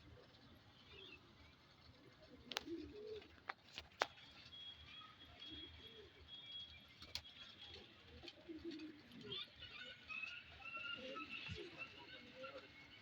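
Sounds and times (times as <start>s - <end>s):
pigeons cooing: 2.2s - 3.4s, 8.2s - 9.4s.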